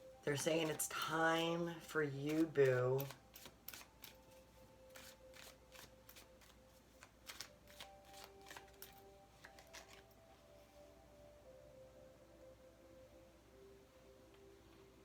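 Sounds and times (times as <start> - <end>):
quiet background music: 0.0 - 15.0
cards being shuffled: 0.5 - 10.3.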